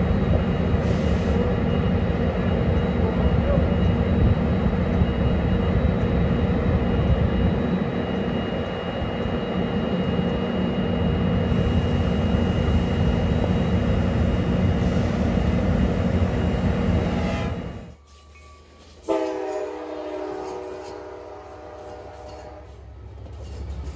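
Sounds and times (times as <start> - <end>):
train idling rumble: 0.0 - 23.9.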